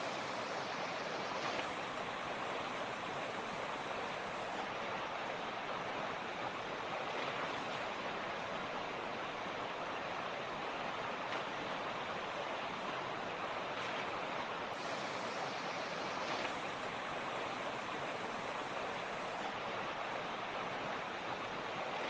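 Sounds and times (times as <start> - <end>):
creek water rushing over rocks: 0.0 - 22.0.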